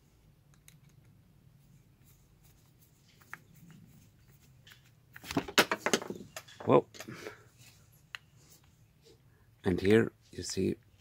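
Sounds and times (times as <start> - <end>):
soft clicks of parts handled: 0.3 - 1.2, 2.4 - 5.3, 6.4 - 8.8.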